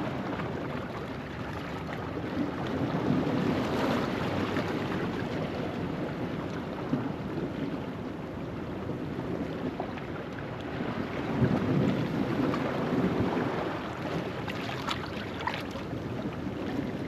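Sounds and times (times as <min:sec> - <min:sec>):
wind buffeting microphone: 0:00.0 - 0:17.0
waves washing over rocks: 0:09.0 - 0:17.0.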